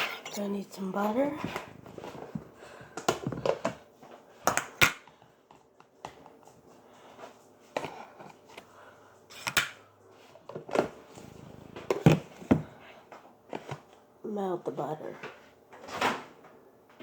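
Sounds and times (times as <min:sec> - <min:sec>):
kitchen items knocking and clicking: 0:01.3 - 0:06.4, 0:11.7 - 0:12.8.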